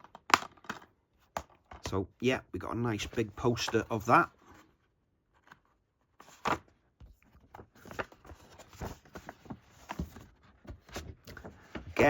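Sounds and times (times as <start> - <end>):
paper crinkling and rustling: 7.2 - 12.0.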